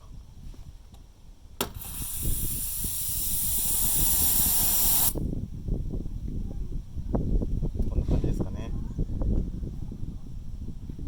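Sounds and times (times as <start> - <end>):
gas hissing from pipe: 1.6 - 5.3.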